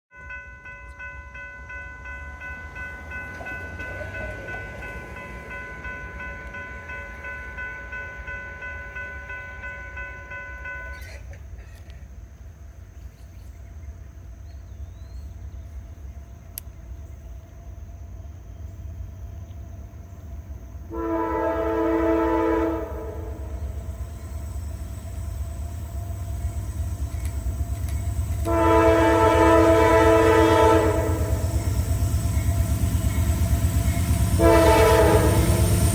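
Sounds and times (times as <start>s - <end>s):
freight train rumble: 0.1s - 35.9s
locomotive horn blasts: 20.9s - 23.8s, 28.4s - 31.8s, 34.0s - 35.9s.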